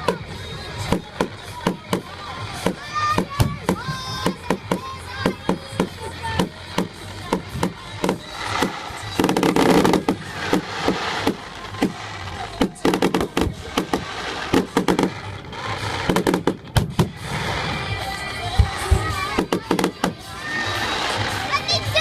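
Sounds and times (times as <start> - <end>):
fireworks shells bursting: 0.0 - 22.0.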